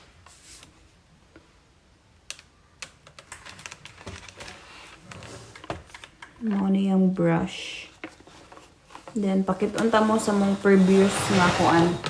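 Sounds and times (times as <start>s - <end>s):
vacuum parts clicking: 8.0s - 12.0s.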